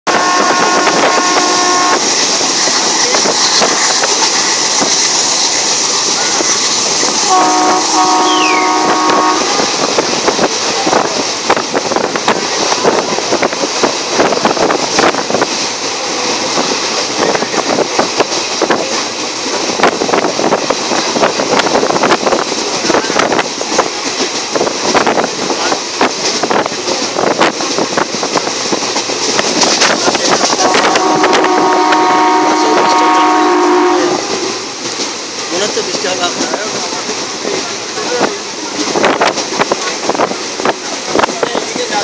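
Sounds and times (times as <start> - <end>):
train wheel and wind noise: 0.0 - 42.0
train horn chord: 0.1 - 2.1, 7.2 - 9.6, 30.6 - 34.4.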